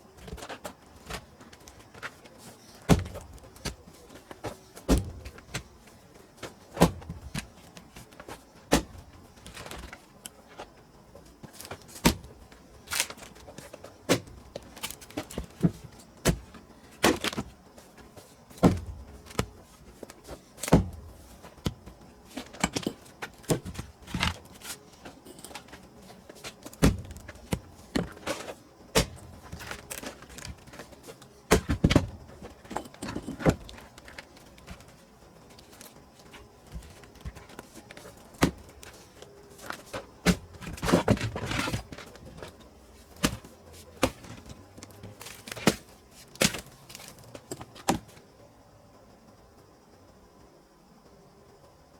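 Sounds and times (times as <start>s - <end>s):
splitting tool striking wood: 26.6s - 30.8s.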